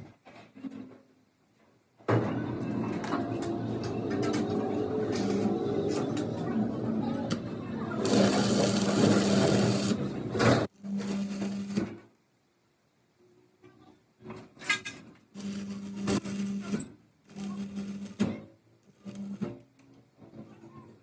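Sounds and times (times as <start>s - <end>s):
power tool humming in bursts: 8.0s - 11.8s, 15.4s - 16.7s, 17.3s - 18.2s.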